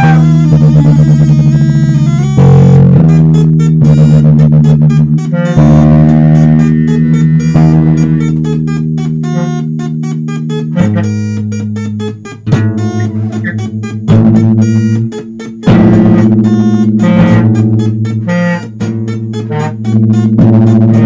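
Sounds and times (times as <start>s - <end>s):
guitar and electric bass playing: 0.0s - 21.0s.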